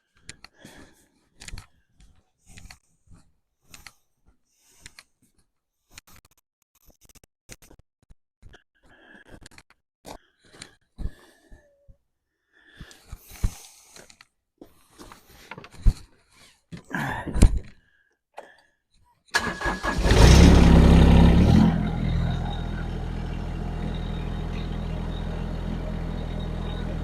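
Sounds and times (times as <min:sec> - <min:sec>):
tractor diesel engine running: 0:19.4 - 0:27.0.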